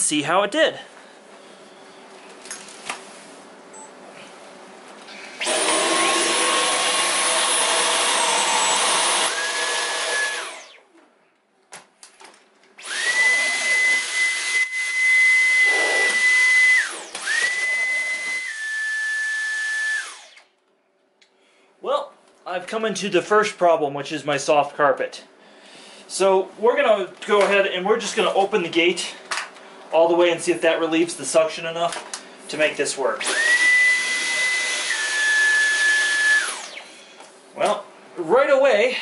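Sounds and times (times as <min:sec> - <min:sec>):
vacuum cleaner motor whine: 0:05.4 - 0:10.8, 0:12.8 - 0:20.5, 0:33.2 - 0:37.0.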